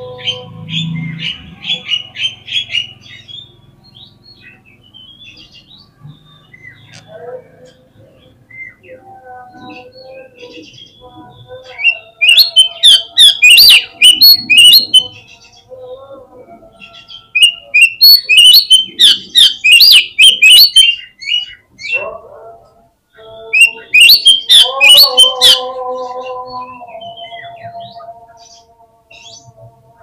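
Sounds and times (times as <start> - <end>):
bird song whistles and chirps: 8.2 - 15.7, 16.6 - 22.1, 23.1 - 29.5.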